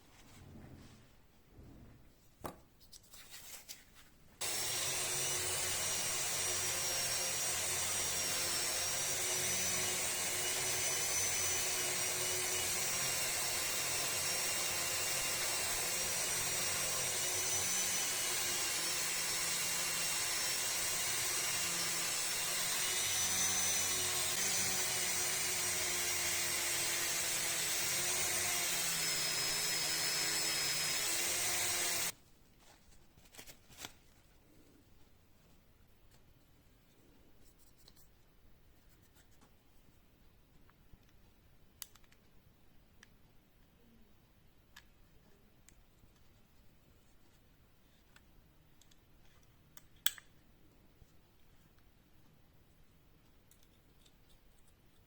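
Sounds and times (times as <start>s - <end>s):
rotary tool polishing metal: 4.4s - 32.1s.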